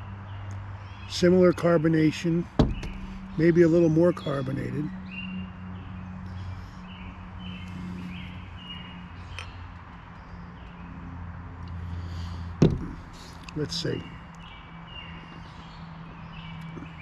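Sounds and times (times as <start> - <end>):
sharp knock: 2.6 - 3.3, 12.6 - 13.2.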